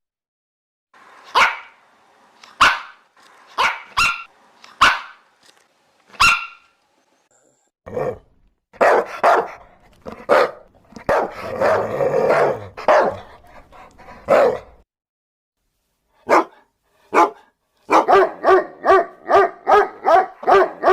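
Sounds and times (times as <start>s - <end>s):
dogs barking: 1.2s - 1.8s, 2.4s - 5.5s, 6.1s - 6.7s, 8.8s - 13.4s, 14.0s - 14.8s, 16.2s - 20.9s.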